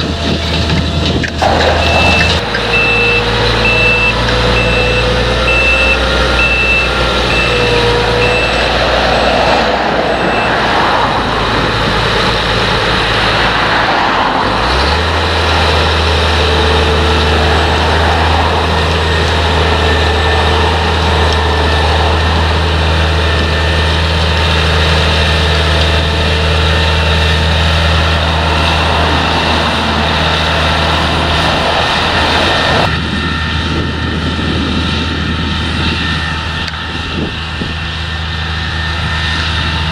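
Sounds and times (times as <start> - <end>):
diesel engines running: 0.0 - 39.9
harvester working noise: 0.0 - 39.9
reversing alarm beeping: 1.4 - 11.4.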